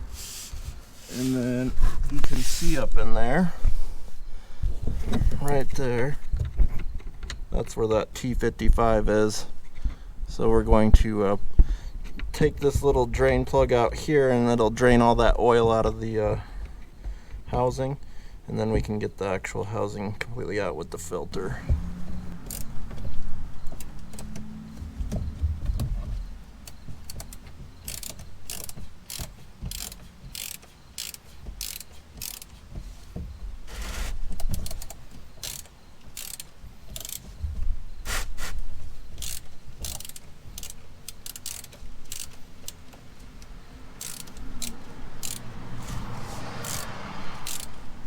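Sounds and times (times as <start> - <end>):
ratchet clicking: 21.8 - 25.9, 26.6 - 32.6, 33.7 - 37.4, 38.0 - 46.0, 46.6 - 47.8.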